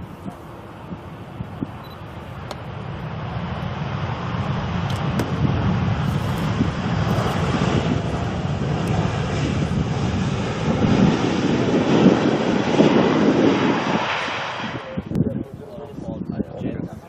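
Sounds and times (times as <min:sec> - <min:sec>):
jet engines rushing noise: 0:00.0 - 0:17.0.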